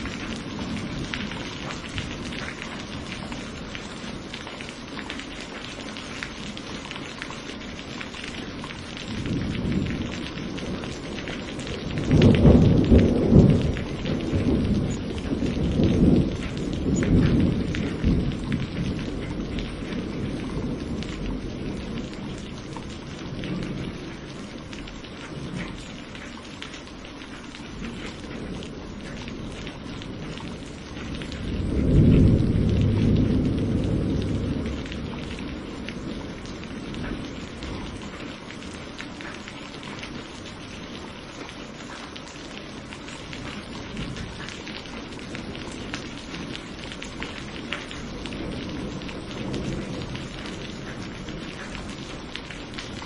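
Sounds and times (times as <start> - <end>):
steady rain: 0.0 - 53.0
thunder rolling: 8.6 - 25.8, 27.8 - 38.2.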